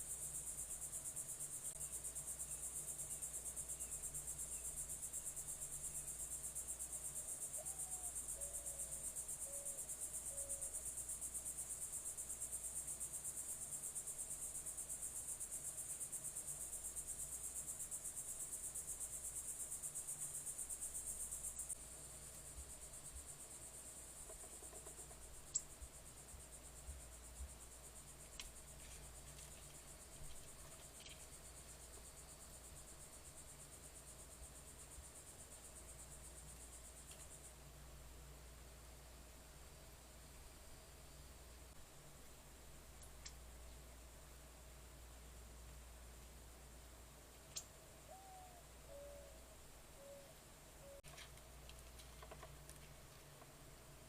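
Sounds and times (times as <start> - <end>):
insects pulsing trill: 0.0 - 39.0, 47.4 - 51.1.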